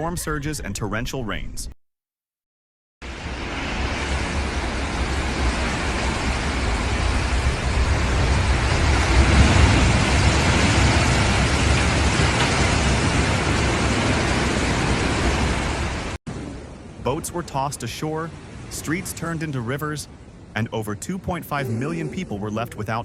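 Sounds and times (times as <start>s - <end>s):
dense steady hiss: 16.4s - 23.0s.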